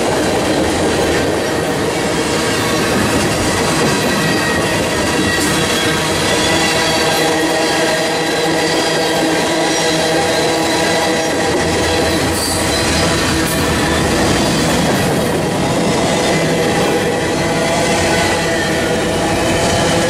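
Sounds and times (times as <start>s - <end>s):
steel wheels rumbling on rail: 0.0s - 20.0s
wheel squeal: 2.0s - 15.0s.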